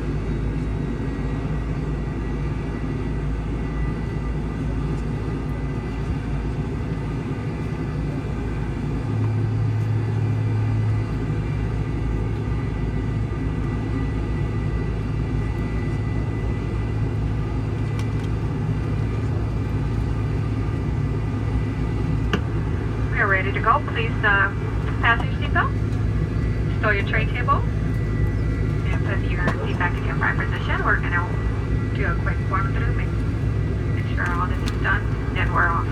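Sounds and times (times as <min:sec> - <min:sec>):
jet engine rumble from cabin: 0:00.0 - 0:35.9
low hum: 0:00.0 - 0:35.9.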